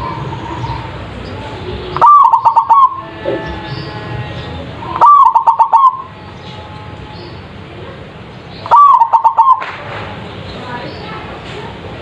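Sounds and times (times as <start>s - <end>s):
dove cooing: 1.7s - 3.8s, 4.8s - 6.1s, 8.6s - 9.7s.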